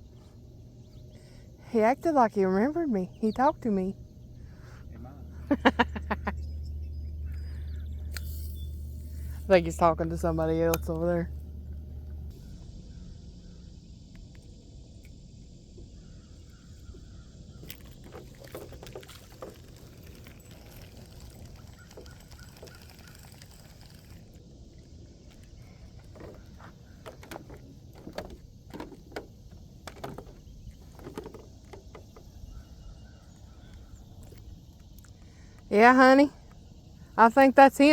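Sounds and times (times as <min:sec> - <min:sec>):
low outdoor rumble: 0:00.0 - 0:37.9.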